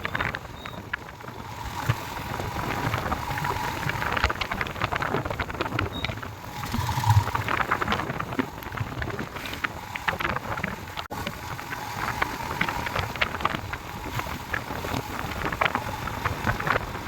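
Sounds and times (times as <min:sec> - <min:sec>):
motorcycle engine rumble: 0:00.0 - 0:17.0
rain and wind on microphone: 0:00.0 - 0:17.0.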